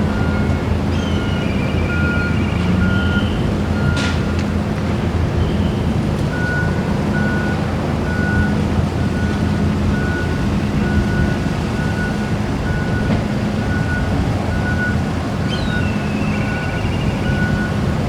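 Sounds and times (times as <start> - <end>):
low engine hum: 0.0 - 18.0
electronic warning beep: 1.2 - 4.0, 15.7 - 17.8.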